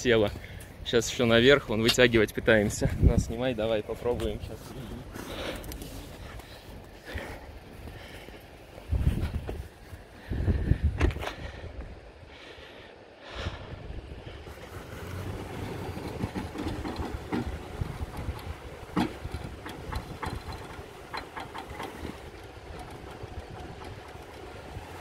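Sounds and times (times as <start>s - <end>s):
vehicle engine running: 14.5s - 25.0s
sharp knocks and clicks: 15.8s - 25.0s.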